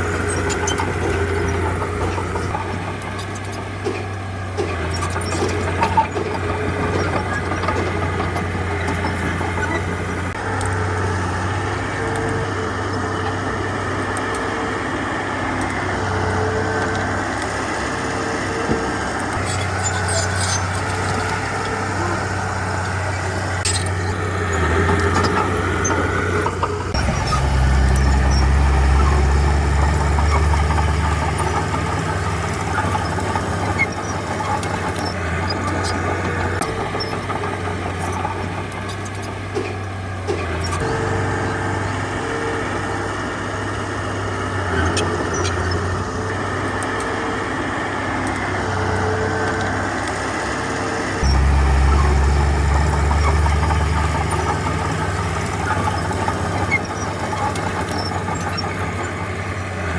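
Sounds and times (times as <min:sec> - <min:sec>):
heavy diesel engine: 0:00.0 - 0:59.9.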